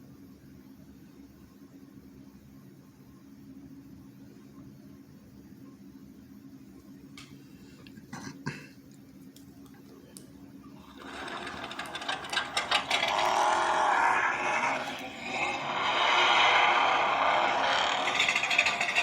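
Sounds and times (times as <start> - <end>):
rising mechanical engine noise: 10.8 - 19.0.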